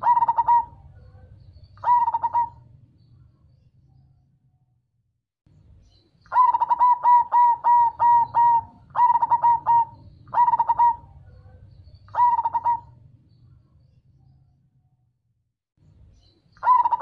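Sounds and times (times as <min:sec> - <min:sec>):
dove cooing: 0:00.0 - 0:02.8, 0:06.3 - 0:13.1, 0:16.6 - 0:17.0.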